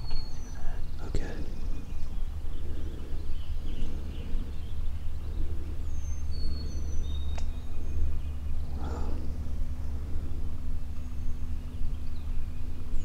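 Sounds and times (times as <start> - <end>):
steady low rumble: 0.0 - 13.0
faint click: 7.3 - 7.5.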